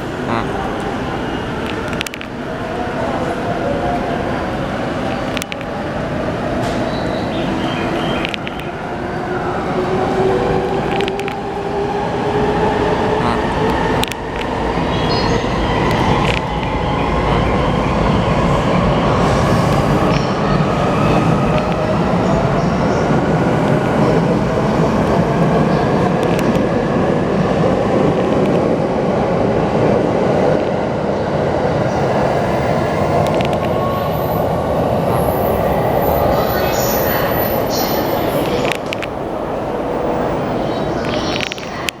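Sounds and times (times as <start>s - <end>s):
train wheels clicking over rails: 0.0s - 17.2s, 18.0s - 29.0s.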